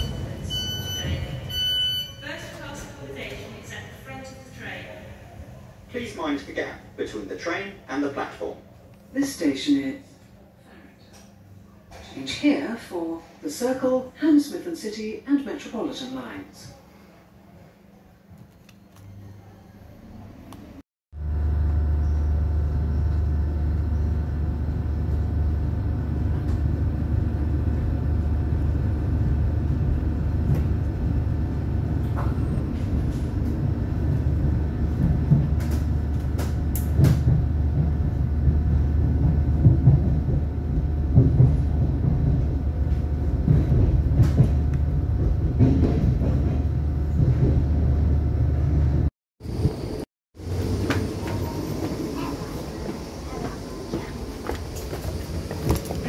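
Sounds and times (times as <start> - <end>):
train interior rumble and hum: 0.0 - 8.1, 20.4 - 56.0.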